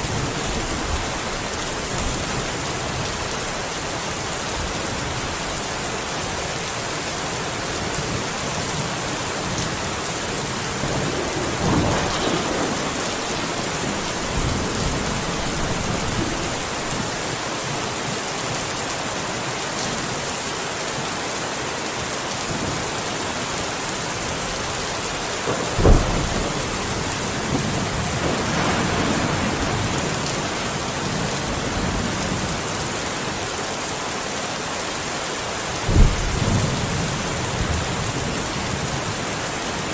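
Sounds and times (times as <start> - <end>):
steady rain falling: 0.0 - 39.9
thunder rumbling: 8.2 - 17.4, 25.4 - 32.7, 35.8 - 38.4
sharp thunderclap: 10.4 - 17.2, 25.5 - 32.4, 35.9 - 37.0.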